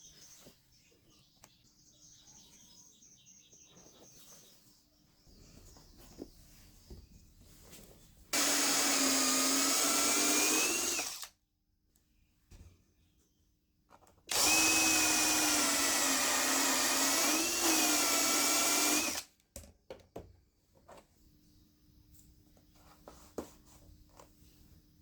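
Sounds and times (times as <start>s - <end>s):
small electric motor whirring: 8.4s - 11.3s, 14.3s - 19.2s.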